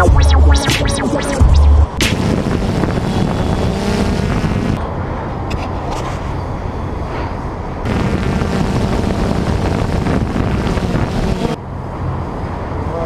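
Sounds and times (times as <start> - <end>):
steady low rumble: 0.0 - 2.6.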